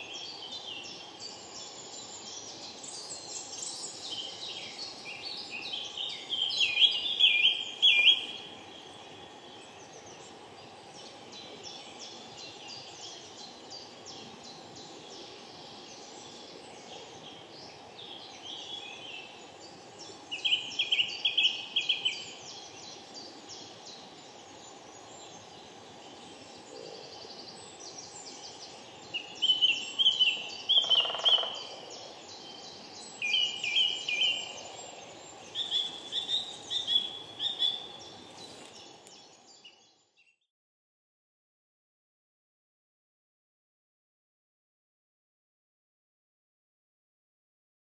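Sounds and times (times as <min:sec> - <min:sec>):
small birds chirping: 0:00.0 - 0:40.4
woodpecker high piping calls: 0:30.0 - 0:32.2.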